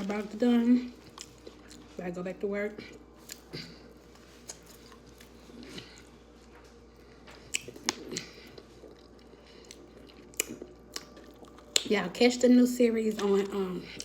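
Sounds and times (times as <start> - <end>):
wet chewing: 1.0 - 1.9, 2.9 - 12.1.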